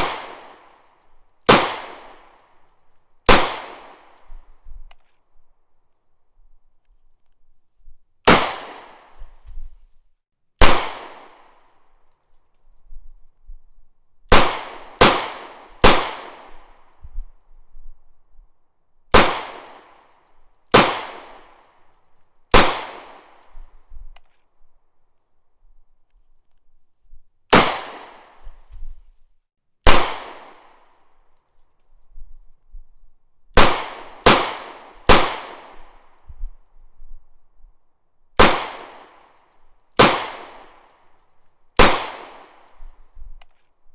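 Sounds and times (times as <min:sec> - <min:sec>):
gunshots with echo: 0:00.0 - 0:00.6, 0:01.5 - 0:02.2, 0:03.3 - 0:04.1, 0:10.6 - 0:11.5, 0:14.3 - 0:16.6, 0:19.1 - 0:19.9, 0:22.5 - 0:23.3, 0:29.9 - 0:30.7, 0:38.4 - 0:39.2.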